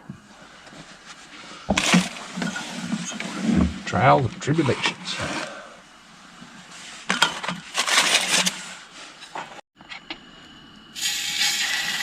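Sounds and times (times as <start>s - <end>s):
fish sizzling in oil: 10.9s - 12.0s.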